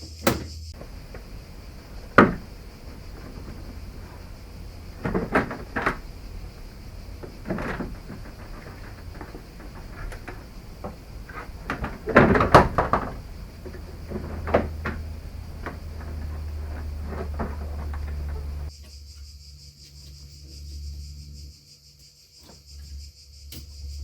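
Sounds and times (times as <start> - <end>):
knocks and clunks of tools: 0.0 - 18.7.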